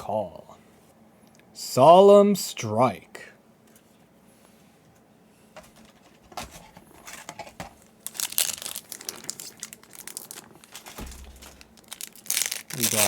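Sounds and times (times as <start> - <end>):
foil wrapper crinkling and tearing: 7.2 - 13.0.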